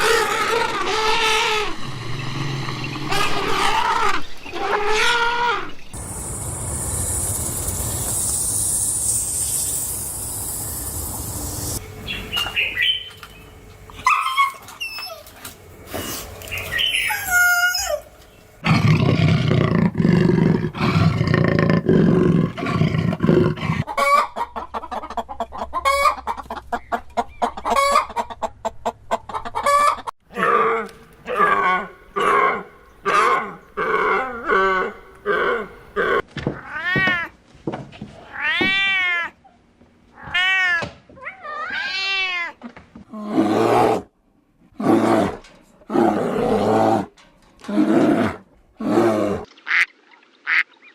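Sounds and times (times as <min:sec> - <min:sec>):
hens clucking: 0:23.8 - 0:30.1.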